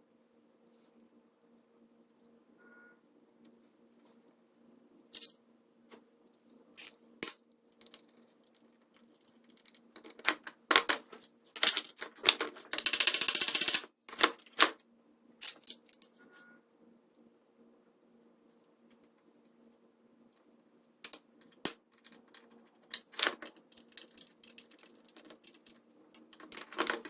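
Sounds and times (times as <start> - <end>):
small metal parts clinking: 5.2 - 5.4, 6.8 - 14.8, 15.4 - 16.2, 21.1 - 27.0.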